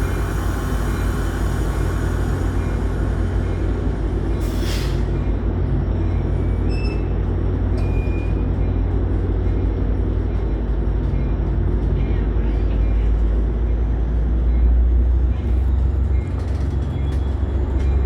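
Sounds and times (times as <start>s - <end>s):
hiss of air: 0.0s - 5.2s
passenger train rumbling: 0.0s - 18.0s.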